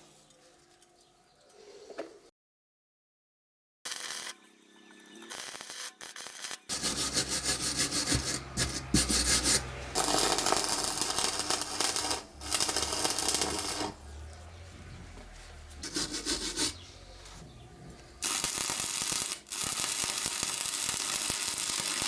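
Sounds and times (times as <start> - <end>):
welding arc crackling and sizzling: 3.9 - 14.0, 18.2 - 22.0.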